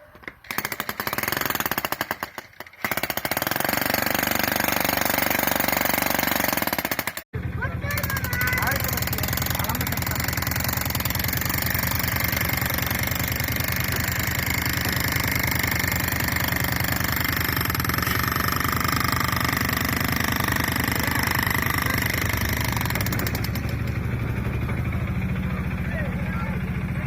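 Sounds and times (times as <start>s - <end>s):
percussive drill hammering: 0.2s - 7.3s, 7.9s - 24.0s.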